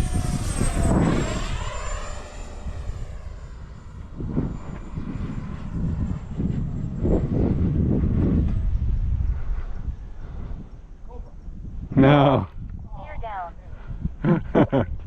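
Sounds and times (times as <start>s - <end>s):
electric ducted fan whining: 0.0s - 13.5s
low rumble: 0.0s - 15.0s.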